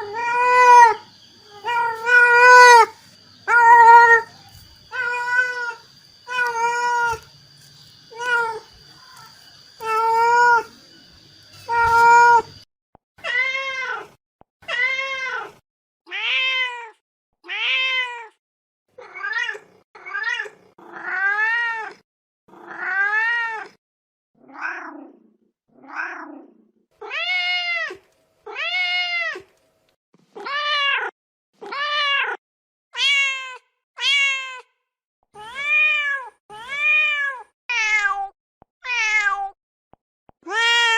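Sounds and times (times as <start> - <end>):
cat meowing: 0.0 - 7.3, 8.1 - 10.7, 11.6 - 12.6, 13.2 - 18.4, 19.0 - 23.8, 27.0 - 29.5, 30.4 - 32.4, 33.0 - 34.7, 35.4 - 39.6, 40.4 - 40.9.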